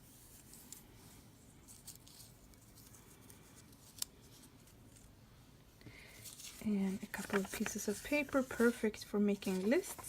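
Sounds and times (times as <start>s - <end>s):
paper rustling: 6.1s - 10.0s.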